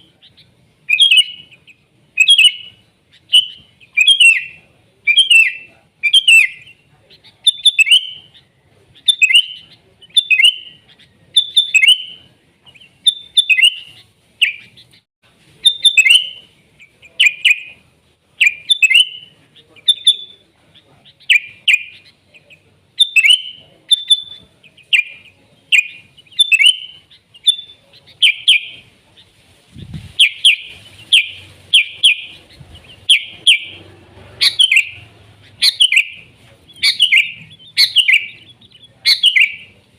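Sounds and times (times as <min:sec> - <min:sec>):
bird singing whistled phrases: 0:00.0 - 0:01.5, 0:02.2 - 0:06.8, 0:07.4 - 0:08.4, 0:09.0 - 0:14.8, 0:15.6 - 0:16.5, 0:17.2 - 0:17.8, 0:18.4 - 0:20.4, 0:21.2 - 0:22.1, 0:23.0 - 0:28.8, 0:30.2 - 0:32.4, 0:33.0 - 0:33.8, 0:34.4 - 0:39.8.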